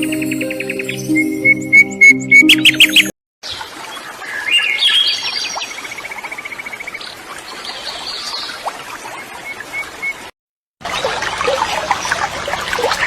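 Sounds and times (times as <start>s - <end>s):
birds chirping: 0.0s - 3.1s
bird trilling: 0.6s - 3.1s.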